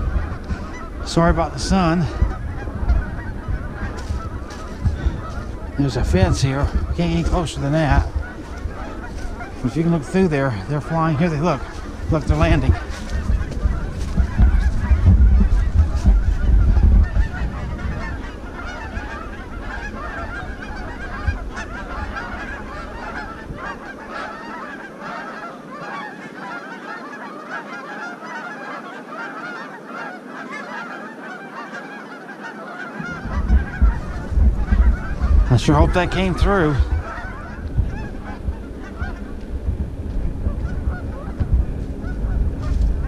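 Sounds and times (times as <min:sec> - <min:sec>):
geese honking: 0:00.0 - 0:43.0
loud low rumble: 0:33.1 - 0:43.0.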